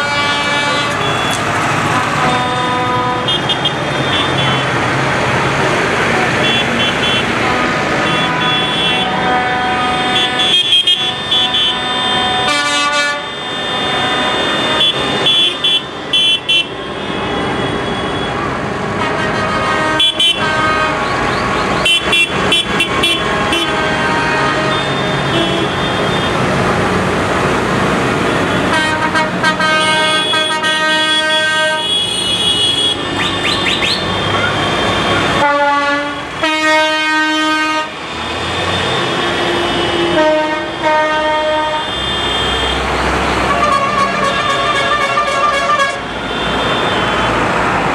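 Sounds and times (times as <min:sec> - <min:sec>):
tractor engines running: 0:00.0 - 0:12.5, 0:13.3 - 0:31.6, 0:32.6 - 0:35.4
tractor horns tooting: 0:00.0 - 0:26.5, 0:28.4 - 0:38.0, 0:38.6 - 0:47.5.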